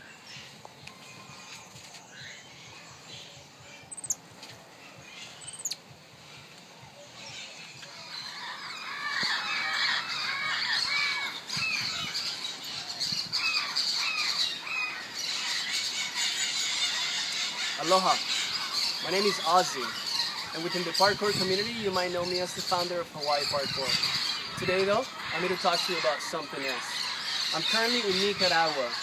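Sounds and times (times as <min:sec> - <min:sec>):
high chirping and squawking animal calls: 0:00.0 - 0:29.0
very high falling calls: 0:06.8 - 0:29.0.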